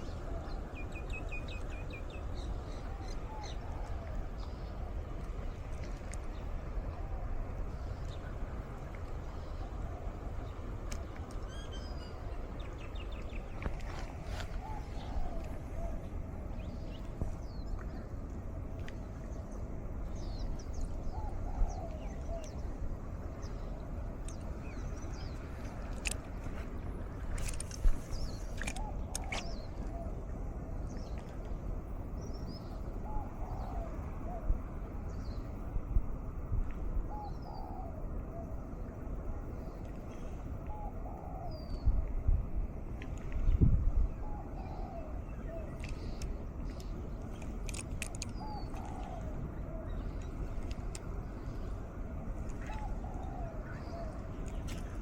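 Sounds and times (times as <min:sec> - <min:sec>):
wind on microphone: 0:00.0 - 0:55.0
birds chirping: 0:44.1 - 0:51.9.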